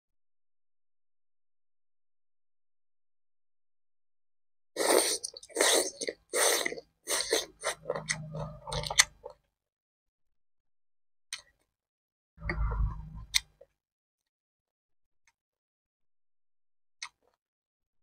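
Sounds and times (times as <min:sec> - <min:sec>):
person chewing wet clicks: 0:04.8 - 0:09.3.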